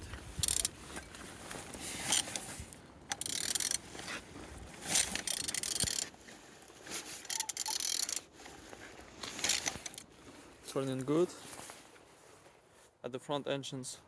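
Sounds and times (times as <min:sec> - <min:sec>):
engine turned over by hand: 0:00.0 - 0:06.2, 0:07.2 - 0:10.1
ratchet clicking: 0:00.4 - 0:00.7, 0:03.1 - 0:03.8, 0:05.0 - 0:06.1, 0:07.2 - 0:08.2, 0:09.3 - 0:10.0.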